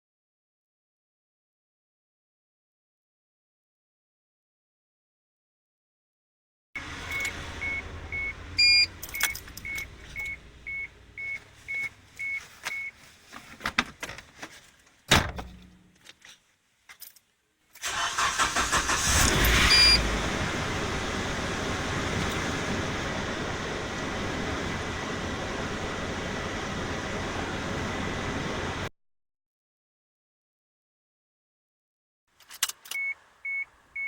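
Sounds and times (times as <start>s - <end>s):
car engine cranking and idling: 6.8s - 14.4s, 17.8s - 28.9s
dashboard chime dinging: 7.0s - 12.9s.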